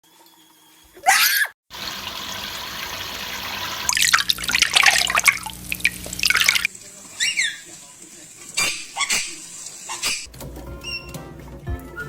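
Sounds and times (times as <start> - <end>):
water running from a tap: 1.7 - 10.3
splashing in water: 3.8 - 7.7.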